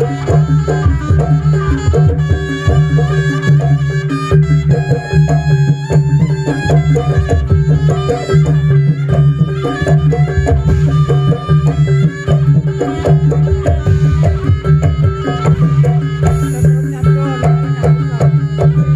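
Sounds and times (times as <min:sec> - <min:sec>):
fast hand drum strokes: 0:00.0 - 0:18.9
held tone: 0:06.2 - 0:18.9.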